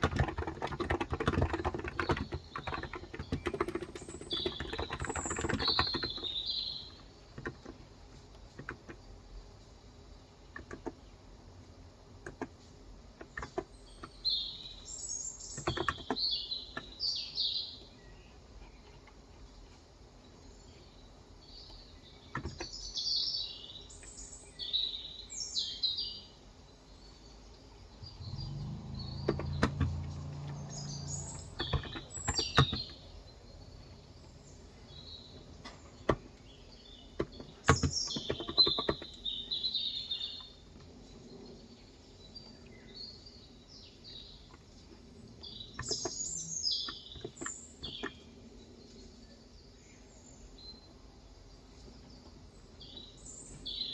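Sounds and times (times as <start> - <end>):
small birds chirping: 0.0 - 53.9
keyboard keystroke clicks: 31.2 - 33.0.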